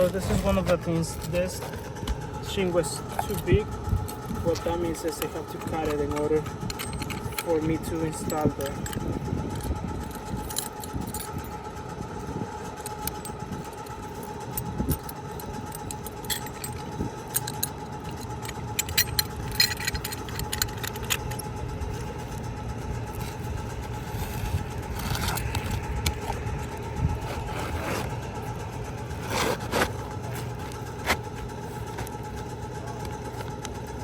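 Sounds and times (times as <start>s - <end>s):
clicks and scrapes on shingle: 0.0s - 7.8s, 23.0s - 33.9s
engine hum: 0.0s - 34.0s.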